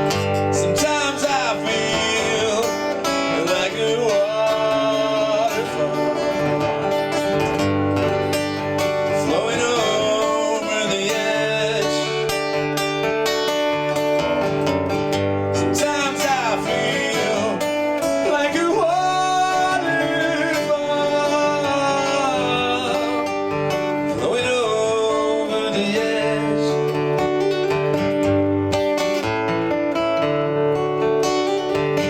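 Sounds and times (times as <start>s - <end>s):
acoustic guitar: 0.0s - 32.0s
person singing long gliding notes: 0.6s - 7.0s.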